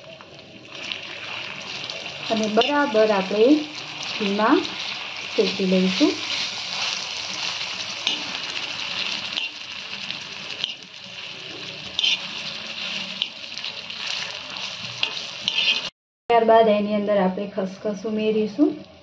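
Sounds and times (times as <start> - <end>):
food sizzling in ghee: 0.0 - 15.9
metal spoon scraping pan: 2.3 - 3.4, 4.2 - 9.7, 10.5 - 15.9.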